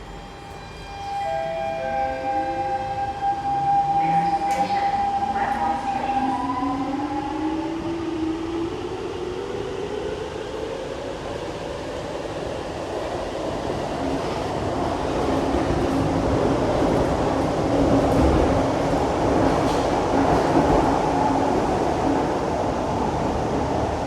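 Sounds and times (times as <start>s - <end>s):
train wheels rumbling: 12.8s - 24.0s.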